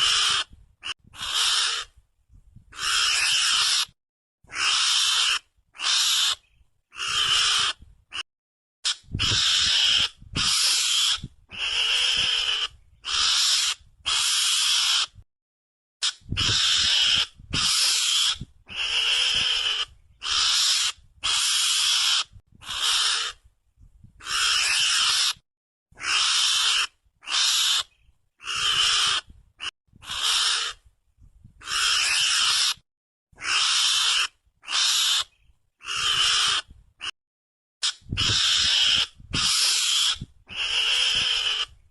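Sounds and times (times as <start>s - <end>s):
harsh hissy squeals: 16.4s - 23.3s, 37.8s - 41.7s.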